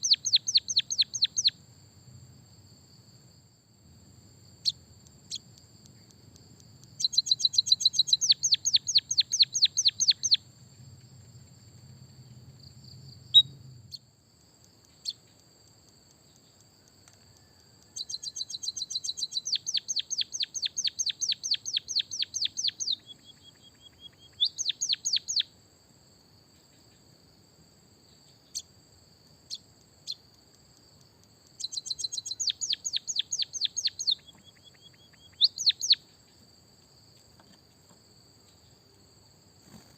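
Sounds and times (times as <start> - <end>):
songbird singing rolling trills: 0.0 - 1.6, 4.5 - 25.5, 29.4 - 36.4
faint high-pitched whine: 0.0 - 39.9.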